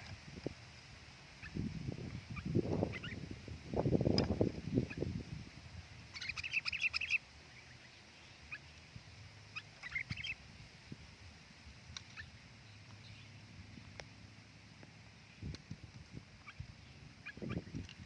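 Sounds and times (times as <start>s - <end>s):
bird chattering calls: 1.4s - 3.3s, 6.1s - 8.7s, 9.5s - 10.4s, 16.4s - 17.8s.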